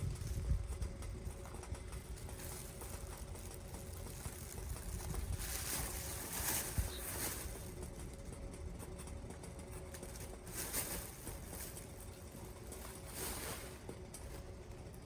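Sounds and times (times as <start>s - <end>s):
wind rumble on microphone: 0.0s - 1.7s, 4.2s - 7.2s
campfire burning: 0.0s - 15.0s.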